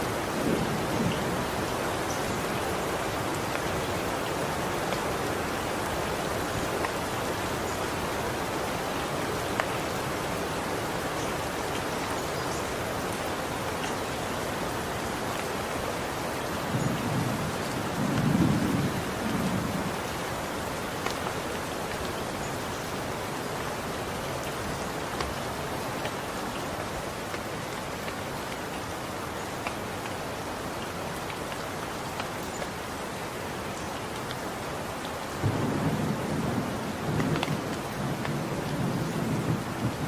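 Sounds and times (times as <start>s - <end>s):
steady rain falling: 0.0s - 40.0s
distant thunder rumble: 16.7s - 20.0s, 35.4s - 40.0s.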